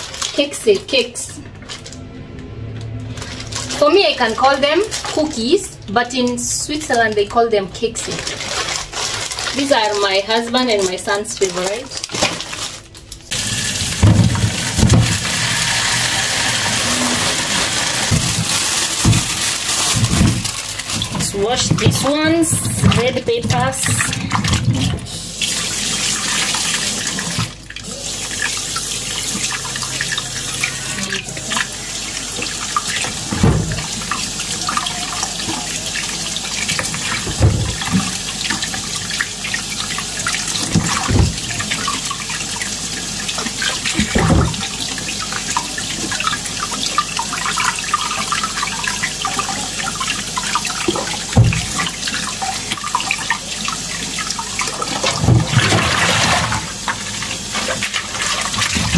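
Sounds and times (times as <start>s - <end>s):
tap running into sink: 13.3s - 25.1s, 36.6s - 49.5s, 50.4s - 53.4s.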